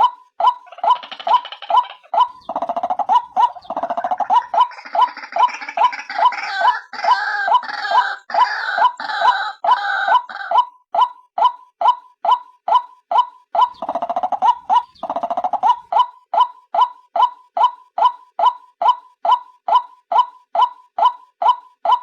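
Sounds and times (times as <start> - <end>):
fast overlapping bird calls: 0.0 - 10.7, 12.3 - 18.6.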